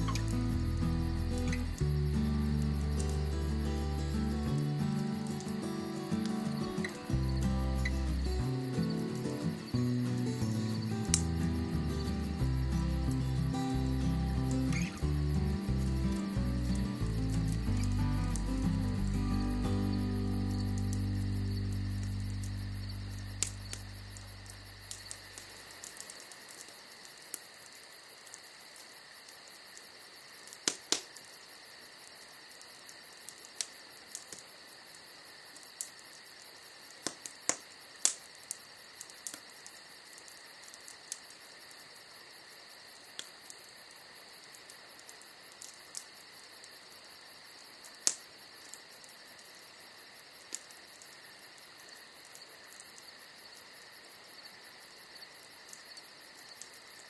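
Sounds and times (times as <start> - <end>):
wood fire crackling and popping: 0.0 - 28.5, 29.2 - 31.3, 32.6 - 34.6, 35.5 - 41.5, 44.6 - 46.8, 48.0 - 49.1, 50.4 - 51.2
crickets chirring: 0.0 - 57.0.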